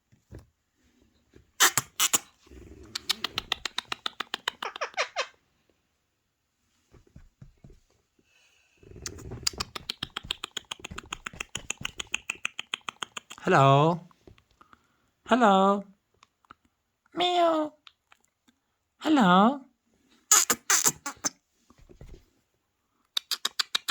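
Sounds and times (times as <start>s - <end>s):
parrot clicking chatter: 1.6s - 2.3s, 2.9s - 5.4s, 9.1s - 13.5s, 20.3s - 21.3s, 23.2s - 23.9s
parrot squawks: 1.6s - 2.3s, 4.4s - 5.4s, 20.3s - 21.3s.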